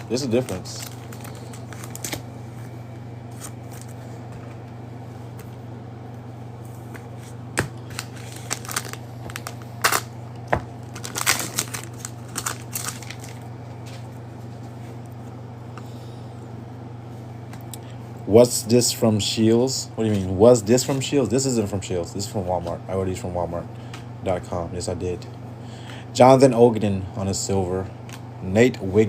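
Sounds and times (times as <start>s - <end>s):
wrappers crinkling and tearing: 0.0s - 2.3s, 7.8s - 13.5s
low hum: 0.0s - 19.2s.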